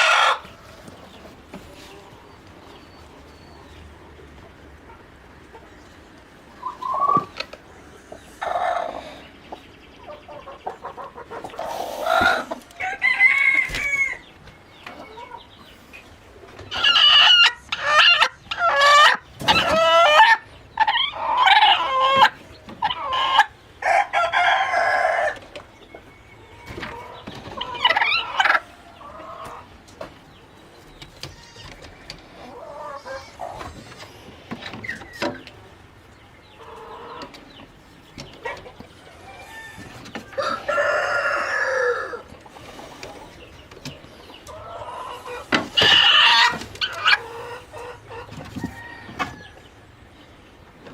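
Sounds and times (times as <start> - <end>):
hens clucking and squawking: 0.0 - 50.9
rooster crowing: 12.3 - 14.2, 39.2 - 42.2, 48.6 - 49.6.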